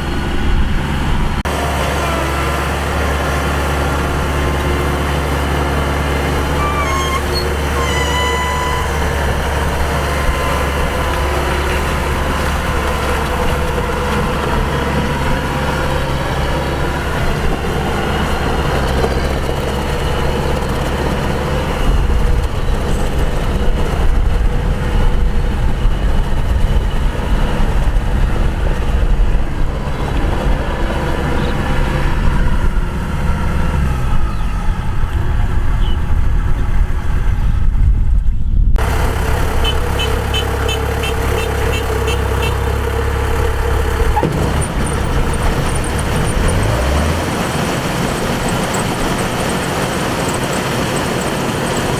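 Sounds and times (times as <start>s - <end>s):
combine harvester diesel engine running: 0.0s - 51.9s
short high squeaks: 6.3s - 10.8s.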